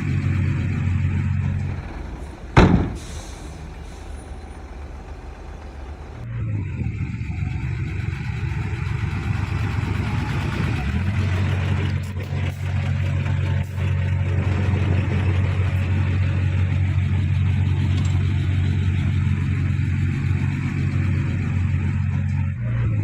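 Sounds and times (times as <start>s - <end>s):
heavy diesel engines running: 0.0s - 23.0s
sharp loud burst: 2.6s - 4.1s.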